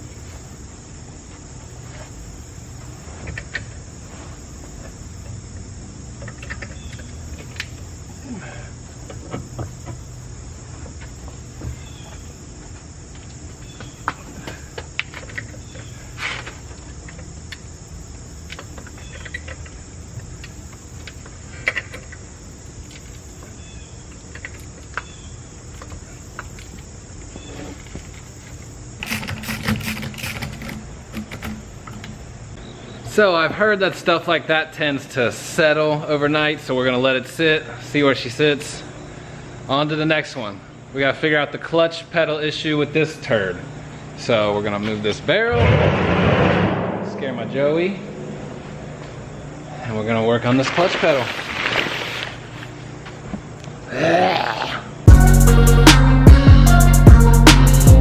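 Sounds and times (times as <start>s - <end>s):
crickets chirring: 0.0s - 58.0s
low hum: 45.6s - 50.0s.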